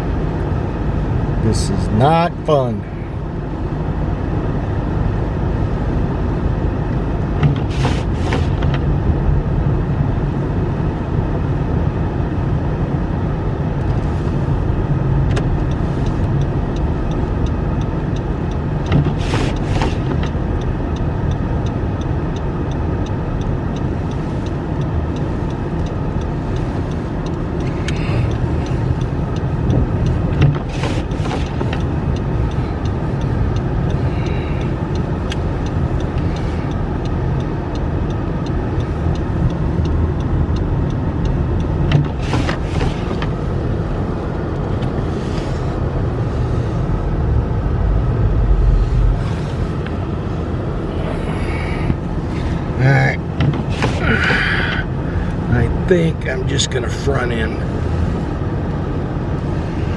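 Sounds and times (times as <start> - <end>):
car road and engine noise: 0.0 - 59.9
double swish: 47.0 - 49.8.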